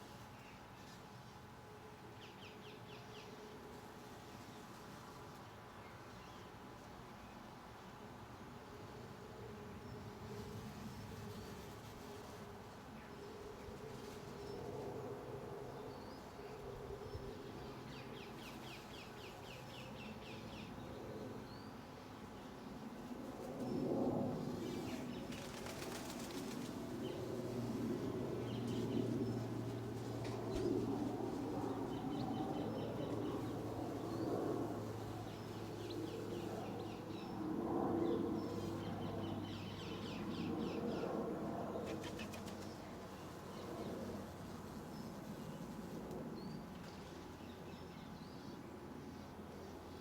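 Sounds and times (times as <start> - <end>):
bird wings flapping: 24.5 - 27.3, 41.8 - 43.0.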